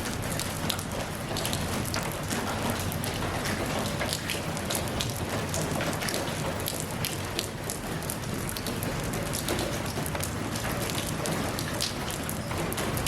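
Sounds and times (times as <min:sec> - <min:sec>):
rain pattering on a surface: 0:00.0 - 0:13.0.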